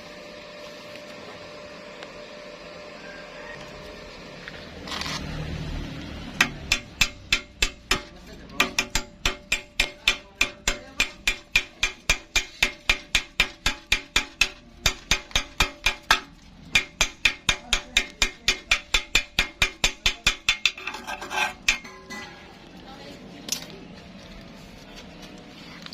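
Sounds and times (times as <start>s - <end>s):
hammer striking steel: 6.3s - 22.5s.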